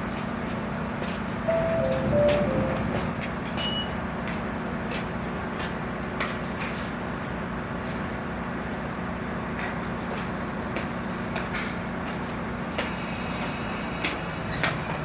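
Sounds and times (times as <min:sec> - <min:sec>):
train equipment humming: 0:01.2 - 0:04.3
chime: 0:01.5 - 0:03.0
short high beep: 0:01.5 - 0:03.0.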